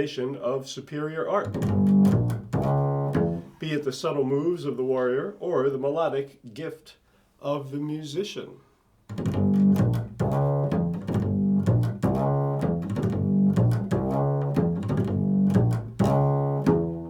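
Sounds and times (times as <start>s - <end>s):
low plucked string instrument: 1.5s - 3.5s, 9.1s - 17.0s.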